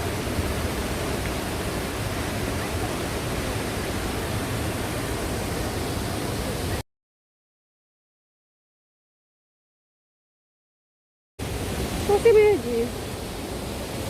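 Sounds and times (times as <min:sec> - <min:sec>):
waterfall rushing: 0:00.0 - 0:06.8, 0:11.4 - 0:14.0.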